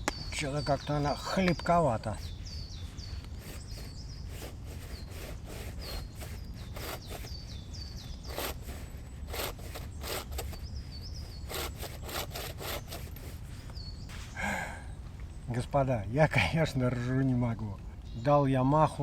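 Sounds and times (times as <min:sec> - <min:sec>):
saw cutting wood: 0:01.6 - 0:13.7.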